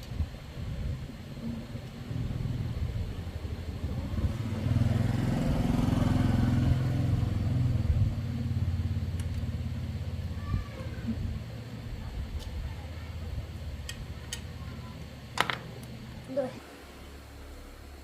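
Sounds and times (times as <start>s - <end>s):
motorcycle engine revving: 1.4s - 10.4s.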